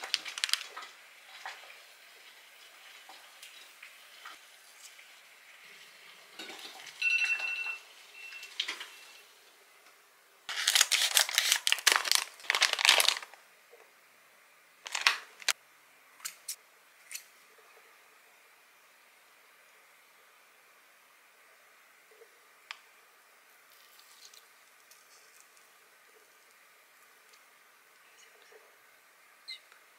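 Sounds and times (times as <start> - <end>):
plastic packaging crinkling: 0.0 - 0.9, 10.5 - 13.4, 14.8 - 15.6
scissors cutting plastic: 10.5 - 13.2.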